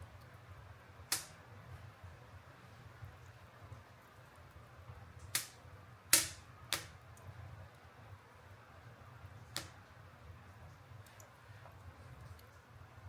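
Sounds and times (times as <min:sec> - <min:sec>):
bonfire wood popping: 0:05.2 - 0:07.2.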